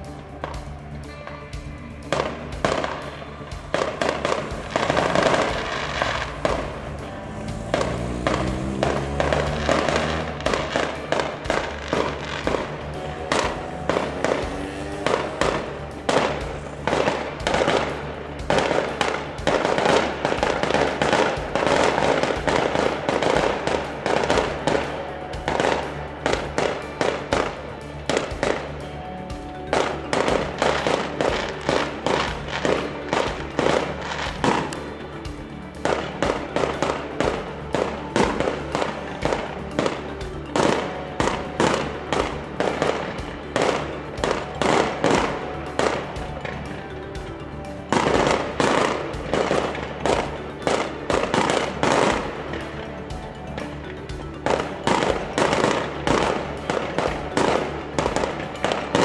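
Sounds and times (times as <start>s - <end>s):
background music: 0.0s - 59.0s
fireworks bangs and crackles: 0.0s - 59.0s.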